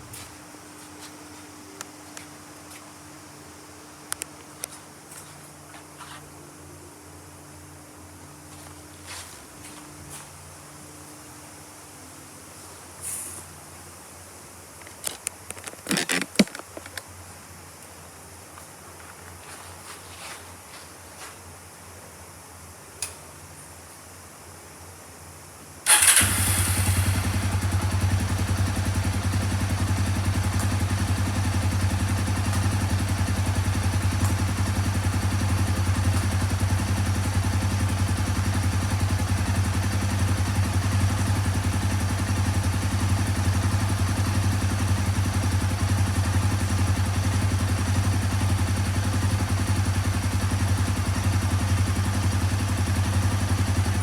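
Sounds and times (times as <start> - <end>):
motorcycle engine starting and idling: 25.8 - 54.0.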